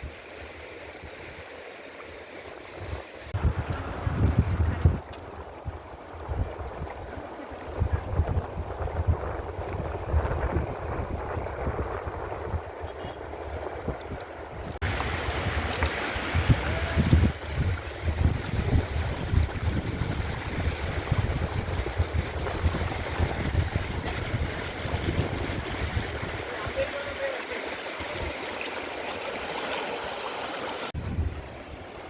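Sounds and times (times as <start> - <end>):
wind buffeting microphone: 2.7 - 27.0, 30.9 - 32.0
mountain stream rushing: 13.1 - 32.0.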